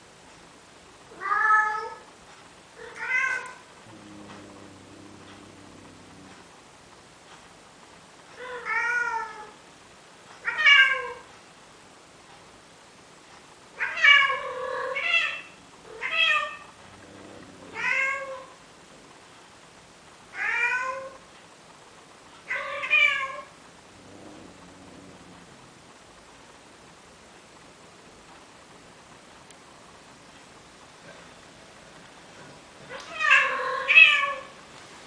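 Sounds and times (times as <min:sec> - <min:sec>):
cat meowing: 0:13.8 - 0:18.6.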